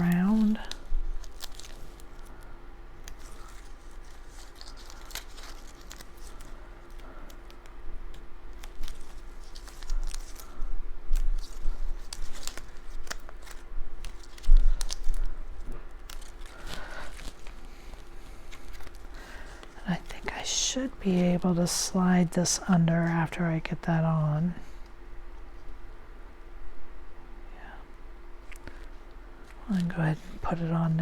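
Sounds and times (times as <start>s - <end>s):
cardstock rustling and crinkling: 0.0s - 21.7s.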